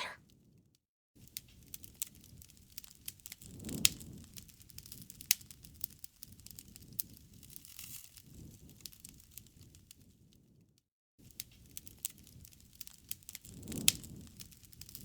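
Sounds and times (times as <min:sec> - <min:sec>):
campfire crackling and popping: 0:01.4 - 0:09.5, 0:11.4 - 0:15.0.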